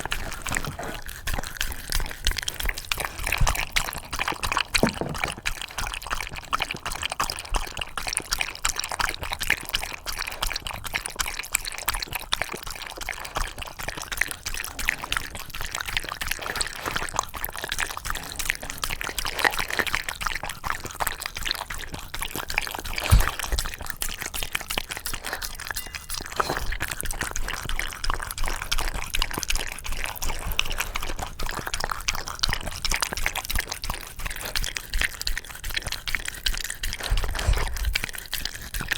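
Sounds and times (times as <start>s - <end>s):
dog lapping and licking: 0.0s - 38.9s
knock: 4.8s - 5.4s.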